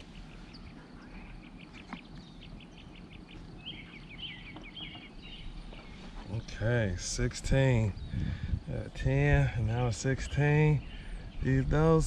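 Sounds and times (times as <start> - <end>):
bird warbling song: 0.0 - 12.0
birds chirping: 0.0 - 12.0.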